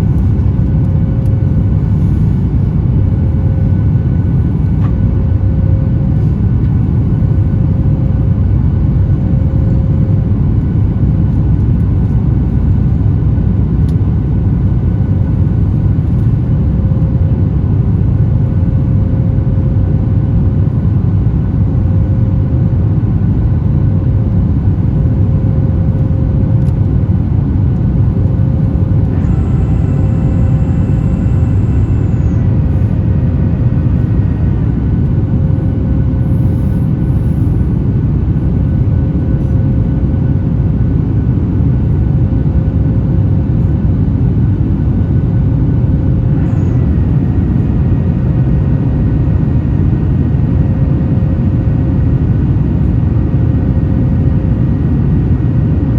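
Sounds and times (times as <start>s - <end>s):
high whine of steady tones: 0.0s - 55.9s
jet engines rumbling: 20.1s - 55.9s
faint short repeating tone: 29.1s - 33.3s.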